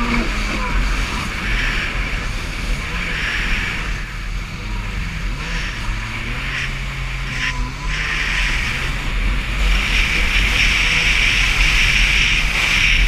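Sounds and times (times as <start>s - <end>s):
jet ski engine running: 0.0s - 13.0s
wind and water spray rushing: 0.0s - 13.0s.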